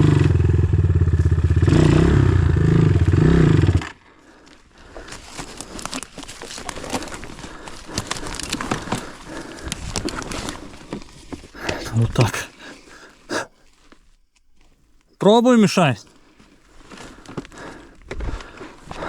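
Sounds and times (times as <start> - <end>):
motorcycle engine running: 0.0 - 3.8.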